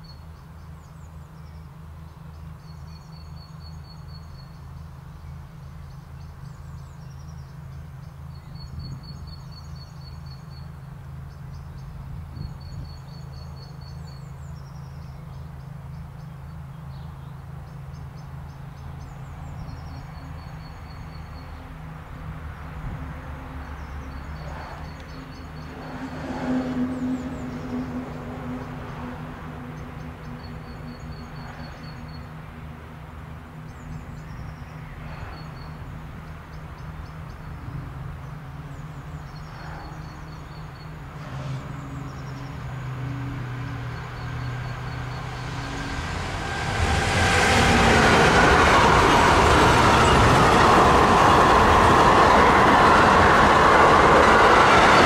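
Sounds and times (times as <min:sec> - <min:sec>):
electric locomotive approaching: 0:18.4 - 0:55.0
birds chirping: 0:43.6 - 0:55.0.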